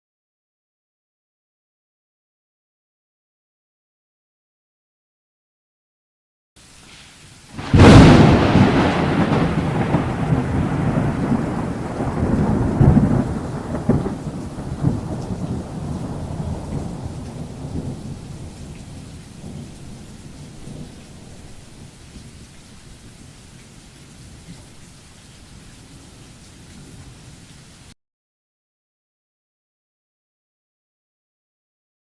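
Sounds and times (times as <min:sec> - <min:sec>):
steady rain: 0:06.6 - 0:28.0
thunderclap and rolling rumble: 0:07.6 - 0:22.4.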